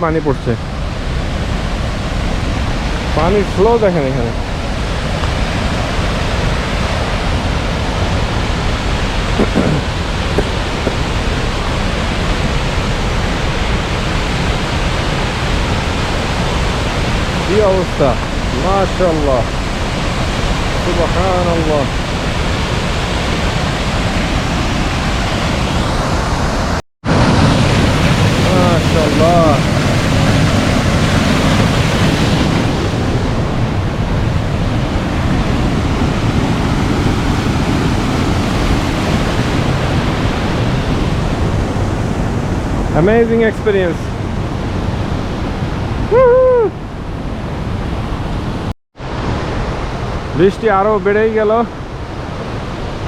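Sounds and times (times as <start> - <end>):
waterfall roar: 0.0 - 53.0
high-pitched vocal exclamation: 46.1 - 46.8.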